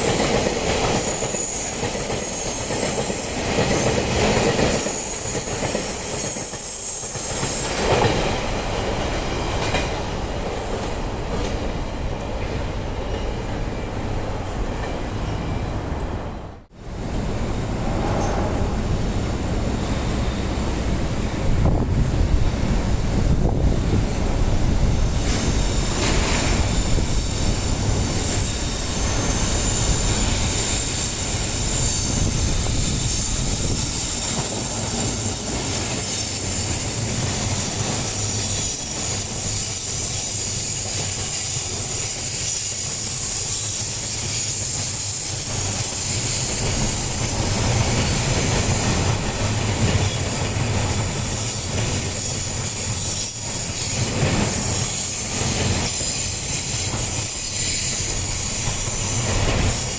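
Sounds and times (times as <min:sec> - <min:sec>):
freight train rumbling past: 0:00.0 - 0:59.9
high wheel squeal: 0:00.1 - 0:08.1, 0:25.2 - 0:59.9.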